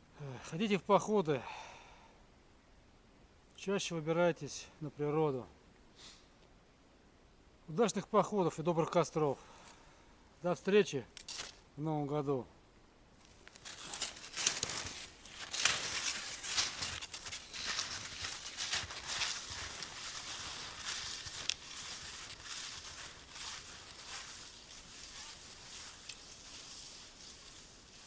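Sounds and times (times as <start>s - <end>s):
footsteps crunching through snow: 13.2s - 28.0s.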